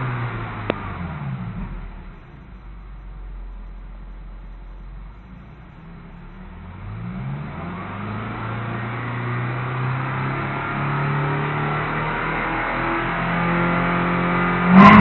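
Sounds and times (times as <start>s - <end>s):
car engine accelerating: 0.0s - 15.0s
exhaust note rising in pitch: 5.4s - 15.0s.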